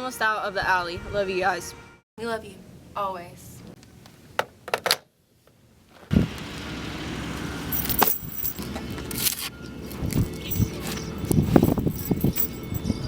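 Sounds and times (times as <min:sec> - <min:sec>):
car engine running: 0:06.2 - 0:11.9
metallic jingles: 0:07.7 - 0:09.2, 0:09.9 - 0:13.0.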